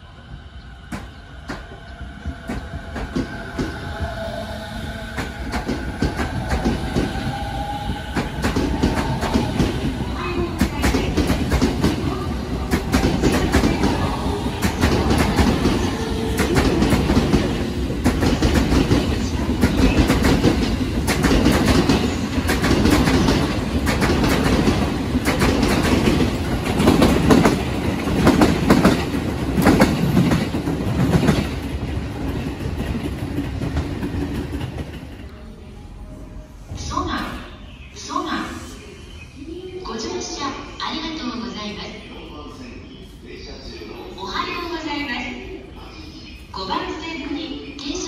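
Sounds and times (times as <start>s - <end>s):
train rolling rumble: 0.0s - 37.9s.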